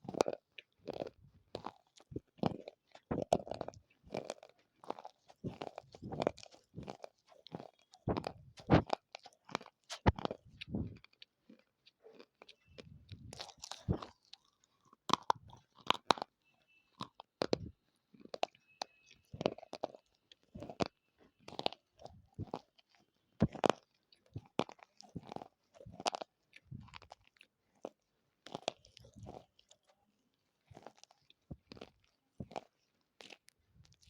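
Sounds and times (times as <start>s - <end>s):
dry clay being chewed: 0.0s - 34.0s.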